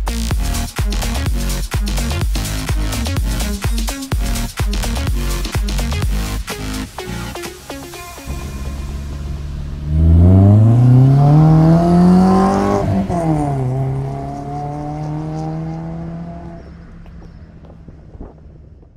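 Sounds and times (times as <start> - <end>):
car engine revving: 8.2 - 18.9.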